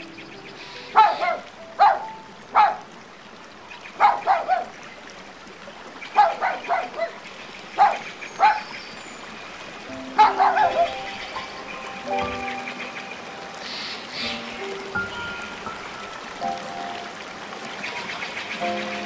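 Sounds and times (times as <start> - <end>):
dog barking: 1.0 - 2.9, 4.0 - 4.7, 6.2 - 7.2, 7.8 - 8.6, 10.2 - 11.0.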